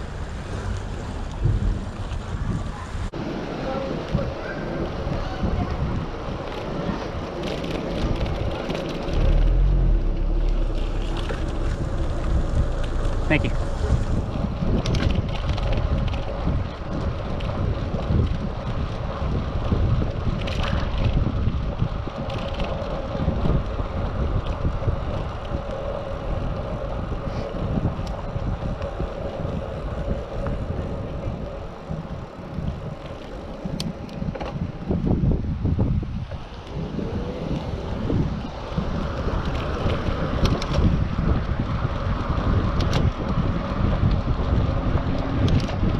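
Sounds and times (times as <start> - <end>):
wind rushing over microphone: 0.0 - 45.9.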